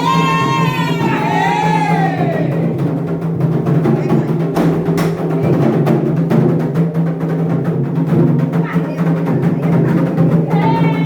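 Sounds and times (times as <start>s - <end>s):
hand drums playing a dense rhythm: 0.0s - 11.0s.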